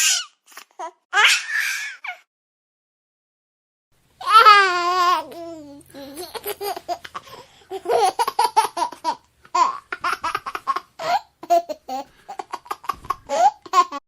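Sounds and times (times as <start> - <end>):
baby laughing and giggling: 4.2 - 14.0.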